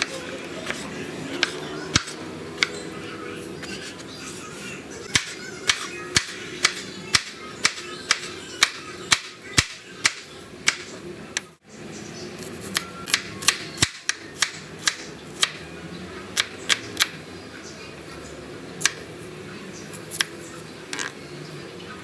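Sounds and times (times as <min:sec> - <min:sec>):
knife chopping on cutting board: 0:00.0 - 0:02.8.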